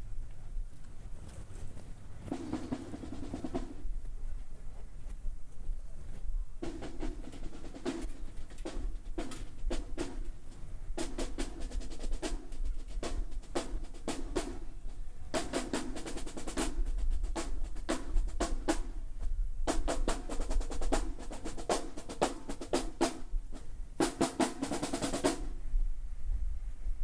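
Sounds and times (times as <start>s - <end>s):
snare drum rolls: 2.3s - 3.8s, 6.6s - 19.0s, 19.7s - 25.6s.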